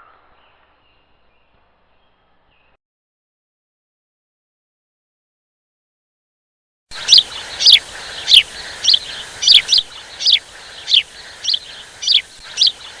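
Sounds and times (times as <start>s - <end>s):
bird chirping: 6.9s - 13.0s.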